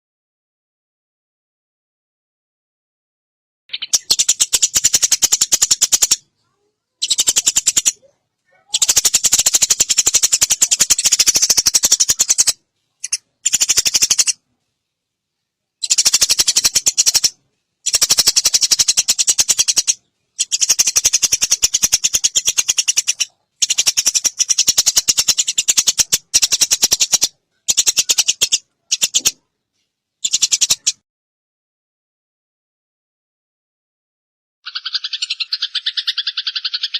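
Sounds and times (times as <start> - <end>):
sparrow chirping: 3.7 - 14.4, 15.8 - 29.4, 30.2 - 31.0, 34.7 - 36.9.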